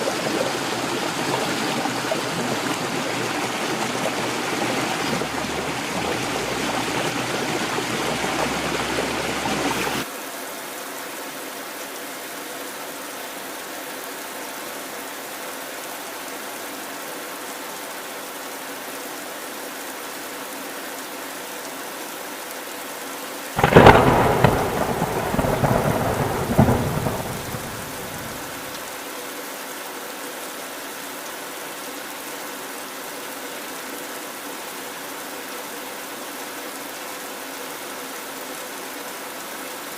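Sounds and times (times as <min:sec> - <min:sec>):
thunder crack and rumble: 0:00.0 - 0:10.0, 0:23.6 - 0:28.8
heavy rain falling: 0:00.0 - 0:10.1, 0:23.4 - 0:35.1.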